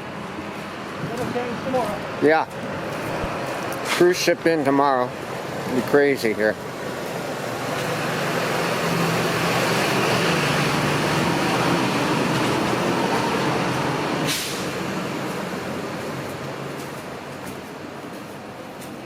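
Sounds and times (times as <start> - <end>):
vehicle driving past: 1.7 - 17.4
short hiss: 14.3 - 14.7.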